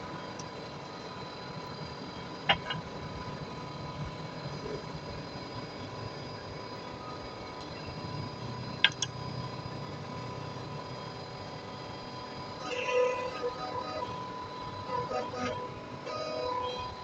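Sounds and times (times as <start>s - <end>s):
machine humming: 0.0s - 17.0s
thin steady tones: 0.0s - 17.0s.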